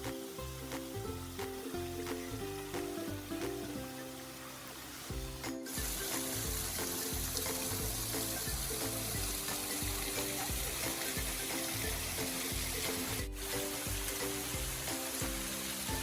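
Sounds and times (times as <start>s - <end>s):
flowing water hiss: 0.0s - 16.0s
background music with bass beat: 5.1s - 16.0s.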